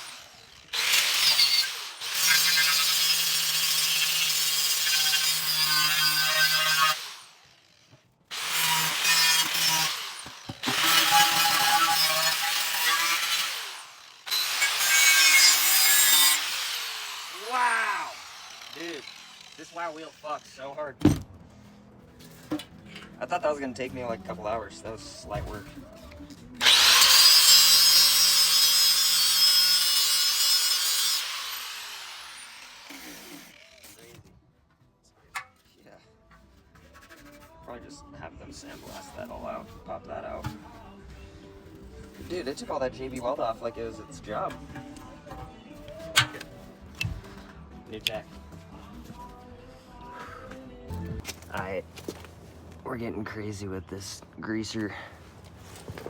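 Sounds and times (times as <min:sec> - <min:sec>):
wire wheel grinder scouring metal: 0:00.0 - 0:20.6, 0:26.6 - 0:34.0.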